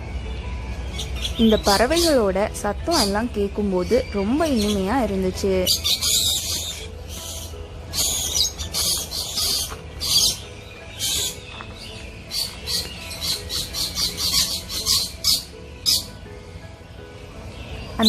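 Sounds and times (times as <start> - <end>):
birds chirping and squawking: 0.0 - 18.0.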